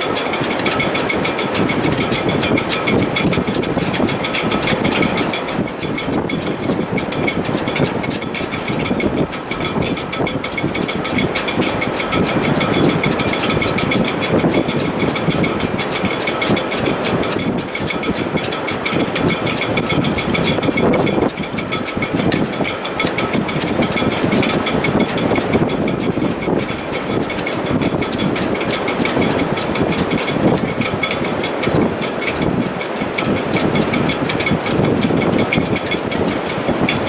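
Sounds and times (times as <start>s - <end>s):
strong wind roaring: 0.0s - 37.0s.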